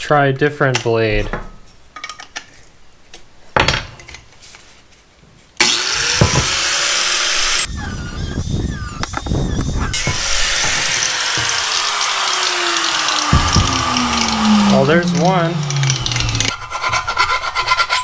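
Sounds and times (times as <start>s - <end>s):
power tool cutting metal: 5.6s - 18.0s.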